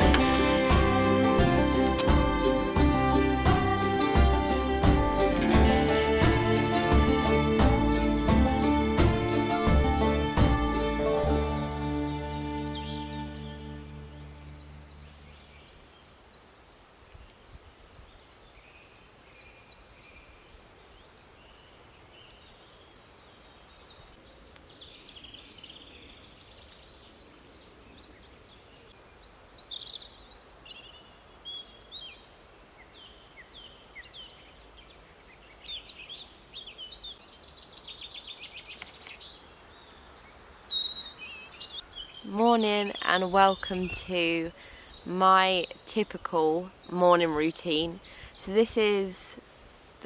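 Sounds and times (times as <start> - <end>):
faint background hiss: 0.0 - 50.0
birds chirping and trilling: 11.4 - 16.8, 23.4 - 49.6.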